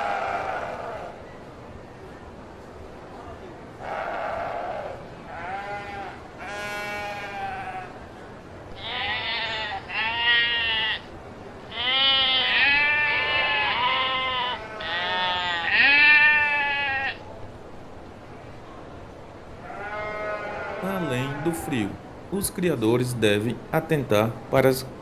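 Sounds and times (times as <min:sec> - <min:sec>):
sheep bleating: 0:05.3 - 0:08.0, 0:08.8 - 0:11.1, 0:11.7 - 0:17.2, 0:19.6 - 0:22.1.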